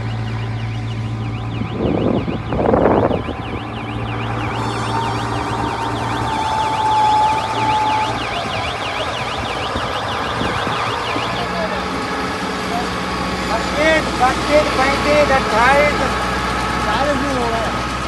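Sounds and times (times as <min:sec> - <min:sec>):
held tone: 0:00.0 - 0:12.0
warbling siren-like tone: 0:00.0 - 0:17.4
loud noisy bursts: 0:00.0 - 0:18.0.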